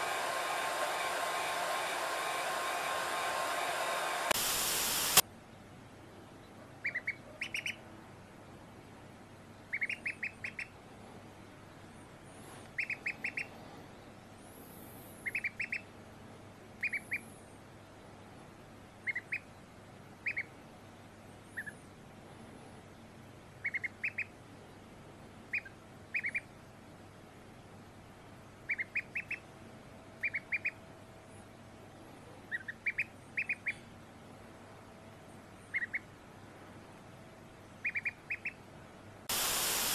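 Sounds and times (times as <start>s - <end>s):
faint steady hiss: 0.0s - 39.9s
duckling peeping: 6.8s - 7.8s, 9.6s - 10.8s, 12.7s - 13.5s, 15.2s - 15.9s, 16.8s - 17.2s, 19.0s - 19.5s, 20.2s - 20.6s, 21.5s - 21.8s, 23.6s - 24.4s, 25.4s - 26.5s, 28.6s - 29.5s, 30.2s - 30.8s, 32.4s - 33.9s, 35.7s - 36.1s, 37.8s - 38.7s.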